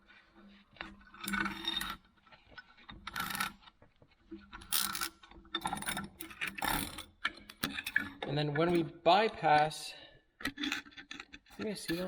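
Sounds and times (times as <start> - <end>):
steel parts clinking and scraping: 0.9 - 2.0, 4.6 - 9.4, 10.4 - 12.0.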